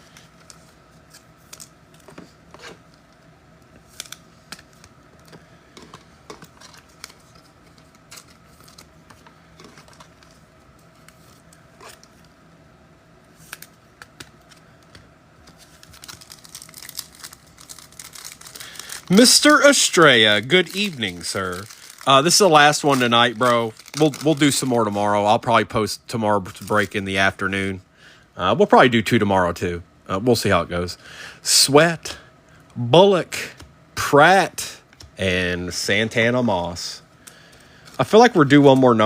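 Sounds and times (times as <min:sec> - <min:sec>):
faint steady hum: 0:00.0 - 0:39.0
packaging crinkling: 0:15.5 - 0:25.3.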